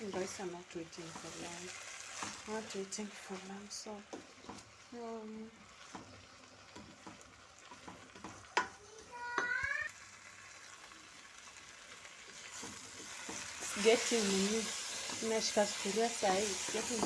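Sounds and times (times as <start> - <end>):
rice and onions sizzling in pot: 0.0 - 17.0
spoon scraping pot: 12.3 - 17.0.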